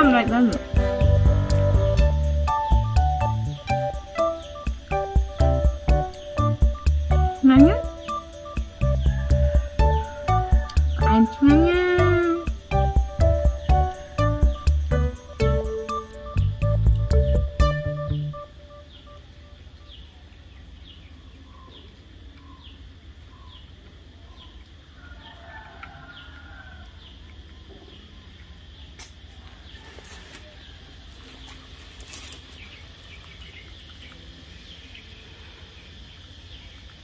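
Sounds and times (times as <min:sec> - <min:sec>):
low hum: 0:00.0 - 0:19.9
bird chirping: 0:00.0 - 0:24.8, 0:31.3 - 0:37.0.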